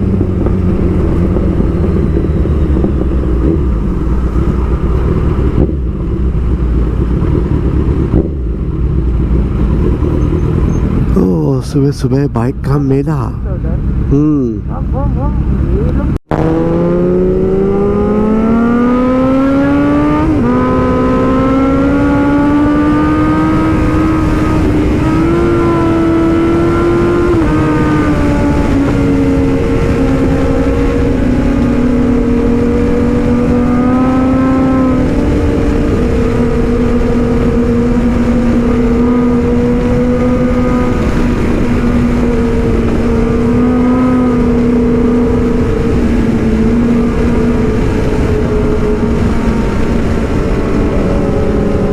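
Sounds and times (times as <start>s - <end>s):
motorcycle engine accelerating: 0.0s - 11.6s, 13.4s - 51.9s
wind rushing: 15.4s - 51.9s.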